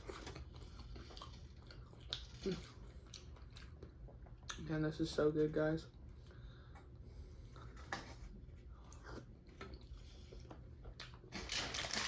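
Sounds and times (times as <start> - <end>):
person chewing food: 0.0 - 4.7, 8.7 - 11.3.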